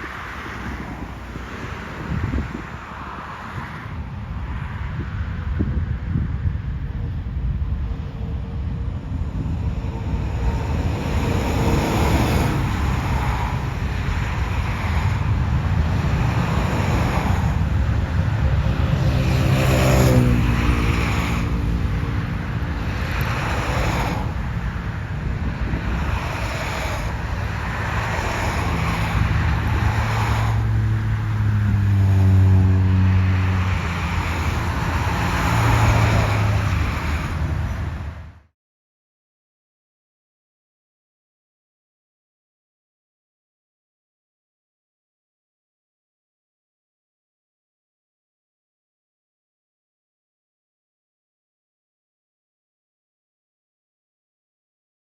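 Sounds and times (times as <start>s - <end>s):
cars passing on road: 0.0s - 38.5s
jet engines running loudly: 6.7s - 30.6s.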